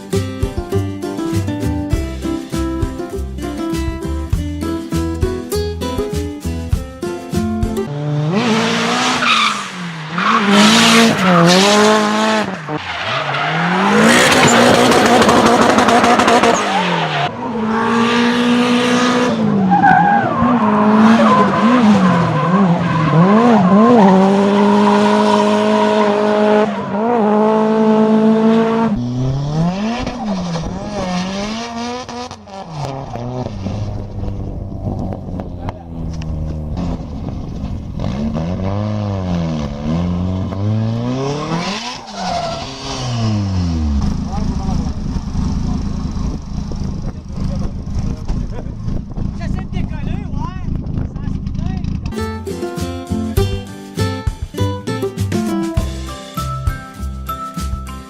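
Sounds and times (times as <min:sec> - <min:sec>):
car engine revving: 0:07.8 - 0:52.1
tire squeal: 0:08.6 - 0:18.1, 0:19.2 - 0:27.6, 0:29.0 - 0:31.7, 0:40.6 - 0:45.5.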